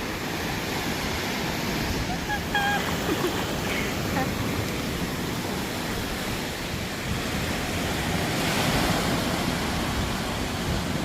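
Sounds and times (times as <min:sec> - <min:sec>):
ocean surf washing onto beach: 0:00.0 - 0:11.0
wind rumbling on microphone: 0:00.0 - 0:11.0.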